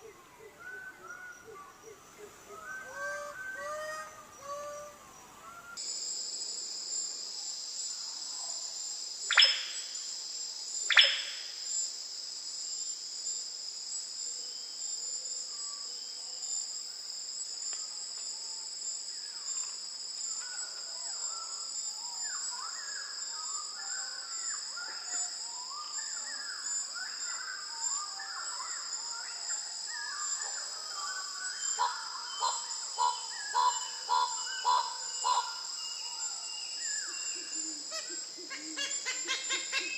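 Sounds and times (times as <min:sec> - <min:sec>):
high-pitched insect drone: 0:05.8 - 0:39.9
downward-sweeping bird calls: 0:09.3 - 0:09.8, 0:10.9 - 0:11.4.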